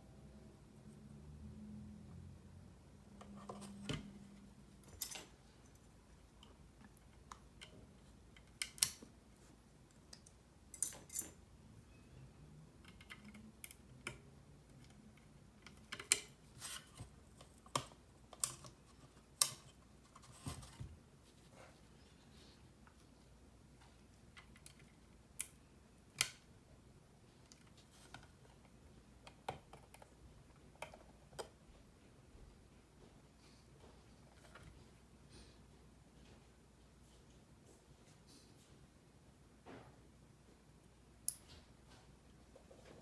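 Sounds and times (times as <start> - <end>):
keyboard parts clicking and snapping: 6.4 - 9.1, 12.8 - 16.4.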